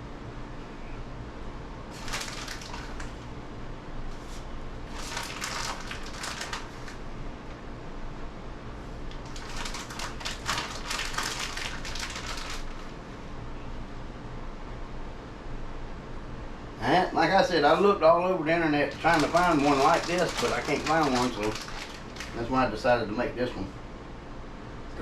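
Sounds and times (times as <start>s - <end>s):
plastic bag crinkling: 1.9s - 3.2s, 4.8s - 7.0s, 9.2s - 12.9s, 18.9s - 22.6s.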